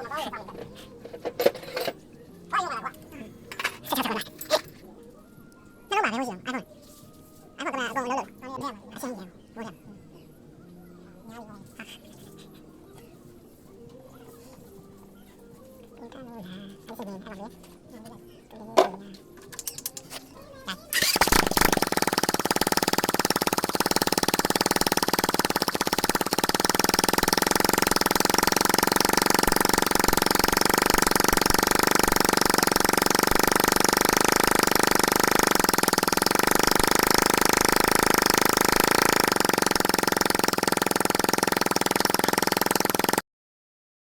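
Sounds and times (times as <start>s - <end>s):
small engine running steadily: 20.9s - 43.2s.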